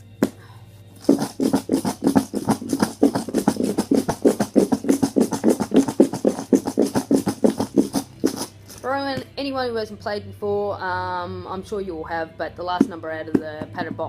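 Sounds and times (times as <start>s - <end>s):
chips rattling in shaken box: 1.0s - 8.9s.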